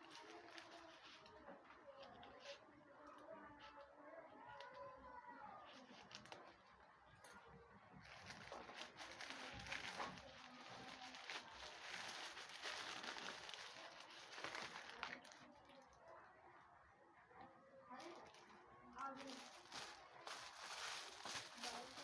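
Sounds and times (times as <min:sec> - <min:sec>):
packaging crinkling: 0:00.0 - 0:02.5, 0:08.0 - 0:15.9, 0:18.0 - 0:22.0.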